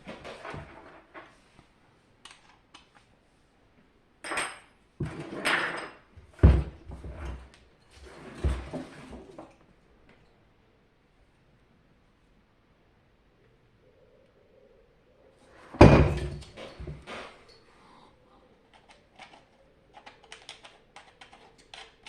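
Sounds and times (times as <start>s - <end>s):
parts clattering and scraping: 15.5s - 22.0s.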